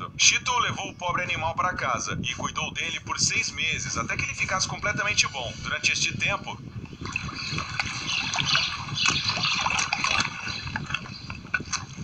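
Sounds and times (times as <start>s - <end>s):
water splashing and sloshing: 6.9s - 12.0s.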